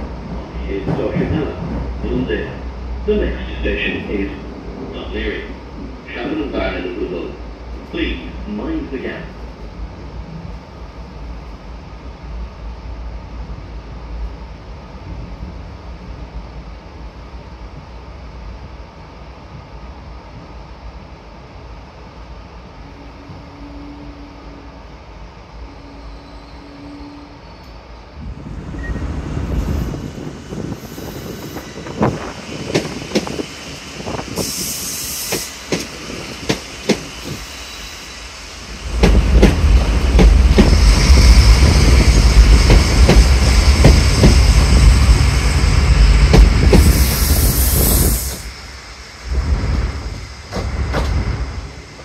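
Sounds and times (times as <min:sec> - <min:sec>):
electric train rumbling: 0:00.0 - 0:52.0
high hiss bursts: 0:30.7 - 0:52.0.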